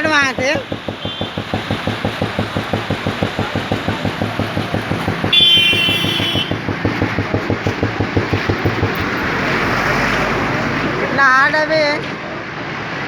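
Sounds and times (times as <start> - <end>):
motorcycle engine idling: 0.3 - 9.2.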